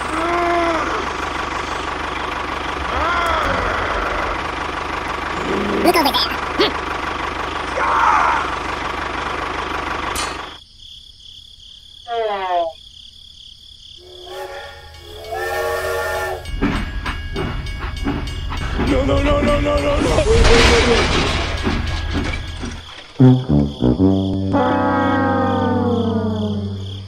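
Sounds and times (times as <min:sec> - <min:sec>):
engine running: 0:00.0 - 0:10.6, 0:16.3 - 0:27.0
train whistle blowing: 0:14.0 - 0:16.5.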